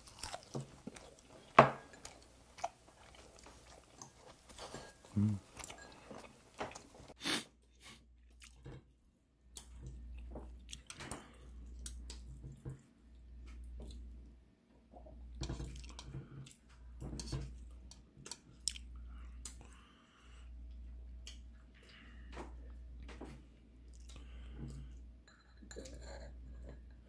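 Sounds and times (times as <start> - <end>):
person chewing: 0.0 - 7.4, 8.2 - 8.6, 9.6 - 12.2, 15.6 - 16.6, 17.7 - 20.0.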